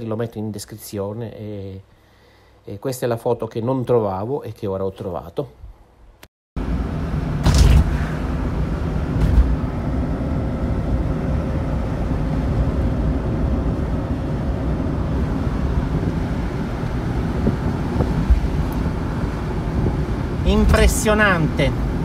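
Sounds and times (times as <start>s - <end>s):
road and wind noise: 6.6s - 22.0s
short rushes of noise: 7.4s - 9.7s.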